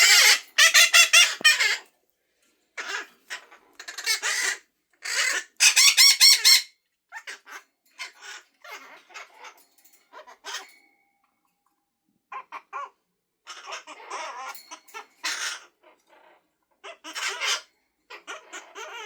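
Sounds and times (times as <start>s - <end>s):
macaw calling and chattering: 0.0s - 1.8s.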